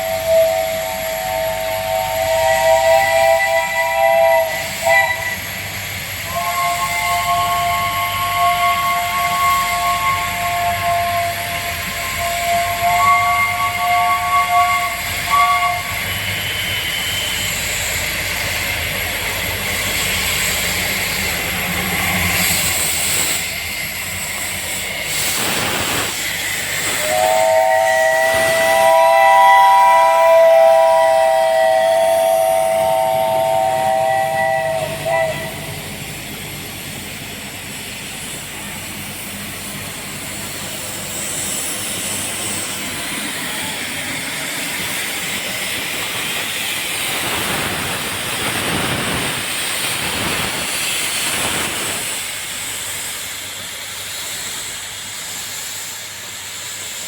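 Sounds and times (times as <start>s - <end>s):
chime steam whistle: 0.0s - 5.6s, 6.2s - 17.8s, 26.6s - 35.8s
steam locomotive hissing: 0.0s - 57.0s.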